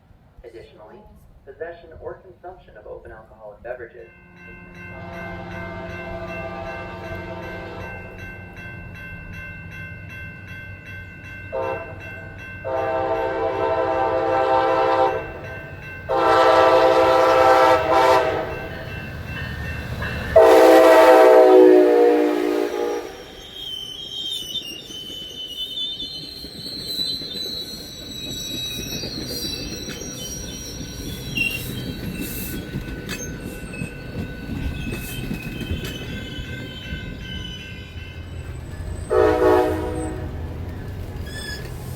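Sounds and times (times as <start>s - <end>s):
train air horn blasts: 4.3s - 8.2s, 11.5s - 12.0s, 12.6s - 15.4s, 16.1s - 18.7s, 20.4s - 23.3s, 39.1s - 40.6s
high-pitched wheel squeal: 22.9s - 33.4s, 41.2s - 41.8s
rail clatter: 24.4s - 41.9s.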